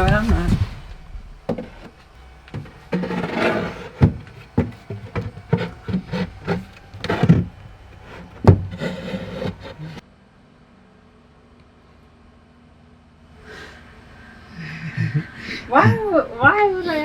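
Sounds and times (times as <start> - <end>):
board scraping: 0.0 - 10.0
wooden knocks and thuds: 0.0 - 10.0.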